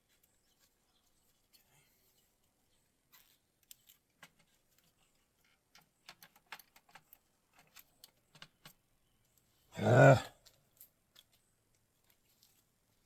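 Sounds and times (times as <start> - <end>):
small parts and tools clicking: 3.1 - 9.5, 10.4 - 12.6.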